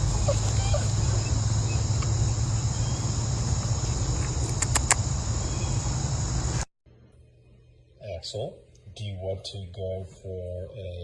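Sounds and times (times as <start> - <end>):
crickets chirping: 0.0 - 6.7
sharp clicks: 4.2 - 5.1.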